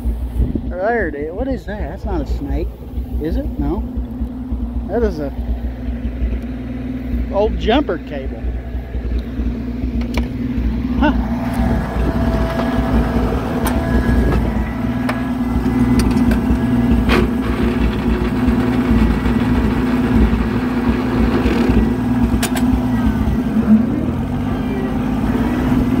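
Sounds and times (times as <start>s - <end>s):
tractor engine running under load: 0.0s - 26.0s
sharp clicks and knocks: 9.9s - 10.4s, 15.0s - 18.6s, 22.4s - 22.7s.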